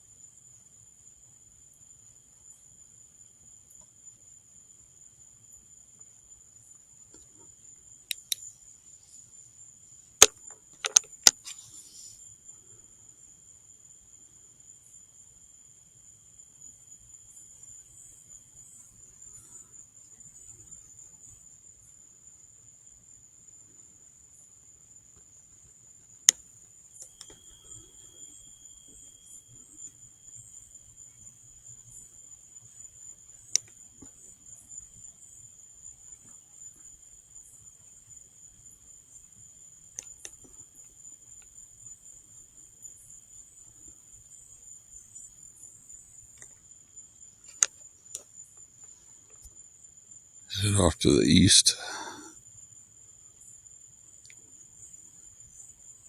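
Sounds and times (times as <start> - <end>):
insects trilling: 0.0 - 56.0
sharp clicks: 8.1 - 8.4, 10.2 - 11.6.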